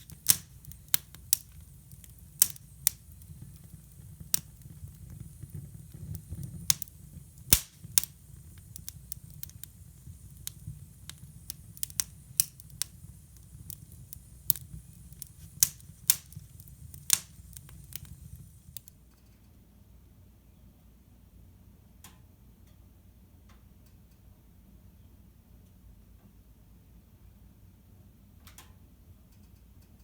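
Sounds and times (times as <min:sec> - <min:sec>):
wood fire crackling and popping: 0:00.0 - 0:19.0
low rumble of burning fire: 0:00.0 - 0:19.5.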